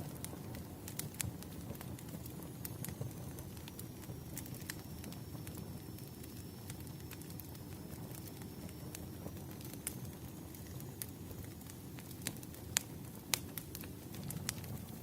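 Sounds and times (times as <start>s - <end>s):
low rumble of flames: 0.0s - 15.0s
wood fire crackling: 0.0s - 15.0s.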